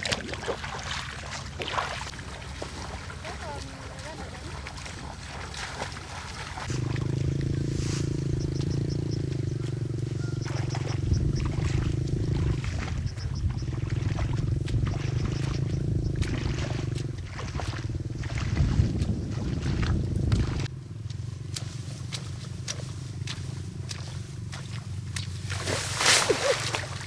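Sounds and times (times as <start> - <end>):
small machine engine humming: 5.9 - 18.2.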